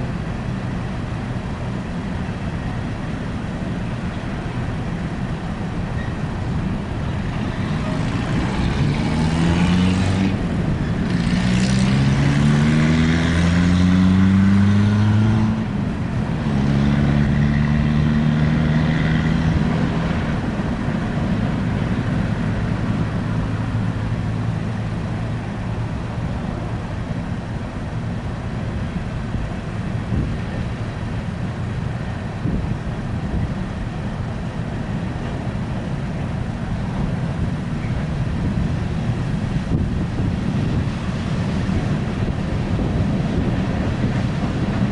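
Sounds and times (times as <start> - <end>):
coal train rumbling: 0.0 - 44.9
vehicle engine accelerating: 7.0 - 27.9.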